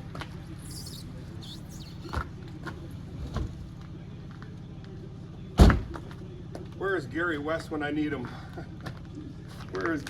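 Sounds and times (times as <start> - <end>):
heavy tire thump: 5.6 - 6.2
tire knocks: 5.6 - 6.2.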